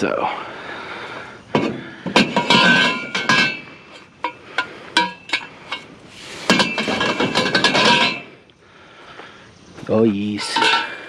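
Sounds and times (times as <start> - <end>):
scrap metal clanking: 1.5 - 8.4, 10.2 - 11.0.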